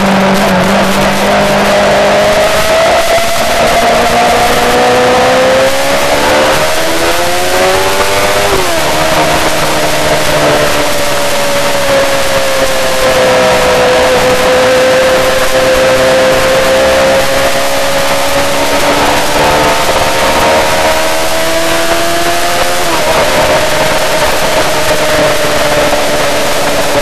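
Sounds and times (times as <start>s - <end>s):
motorcycle engine at high revs: 0.0s - 27.0s
wind noise: 0.0s - 27.0s.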